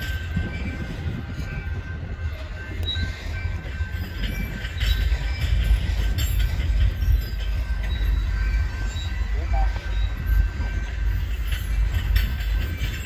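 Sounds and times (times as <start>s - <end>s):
train wheels rumbling on rails: 0.0s - 13.0s
wheel clacks: 0.0s - 13.0s.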